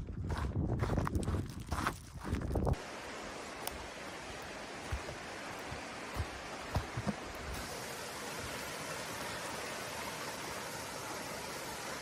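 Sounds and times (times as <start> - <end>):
stream water rushing: 2.8 - 12.0.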